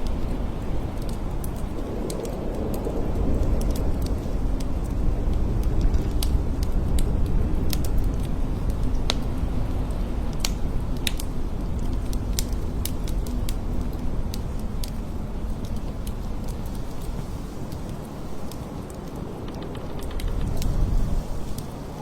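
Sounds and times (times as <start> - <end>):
light ticks: 0.0 - 21.7
blizzard wind blowing: 0.0 - 22.0.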